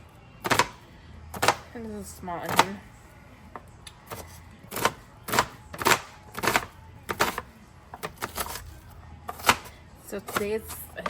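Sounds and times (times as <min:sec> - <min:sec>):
knife chopping onion on board: 0:00.4 - 0:00.8, 0:04.1 - 0:08.7, 0:09.3 - 0:11.0.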